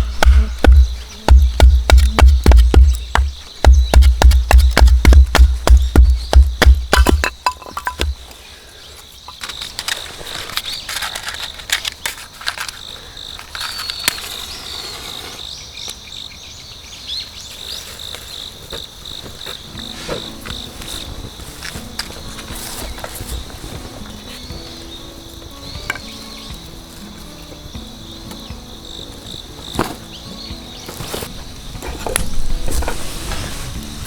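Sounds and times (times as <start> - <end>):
loud rhythmic thumping: 0.0 - 8.2
insects chirping drone: 0.0 - 34.0
small clicks and rustles: 9.3 - 14.4.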